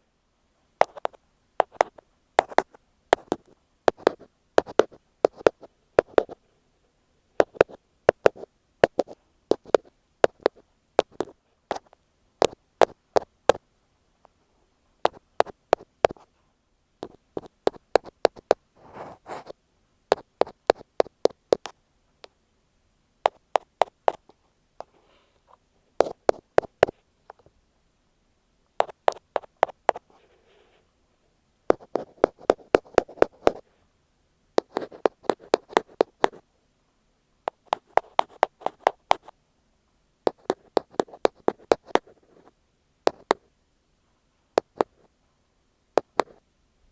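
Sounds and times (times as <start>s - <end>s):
soft rubbing: 15.1s - 21.7s
ear pick tapping on microphone: 17.0s - 18.6s, 28.8s - 30.0s, 43.1s - 43.4s.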